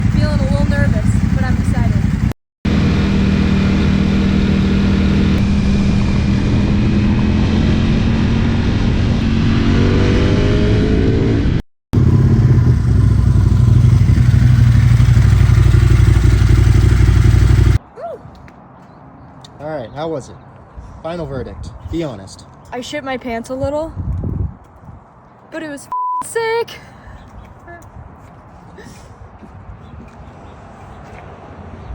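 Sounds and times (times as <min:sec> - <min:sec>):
deep steady engine note: 0:00.0 - 0:09.6, 0:11.4 - 0:17.8
motorcycle engine running loud: 0:00.0 - 0:17.8.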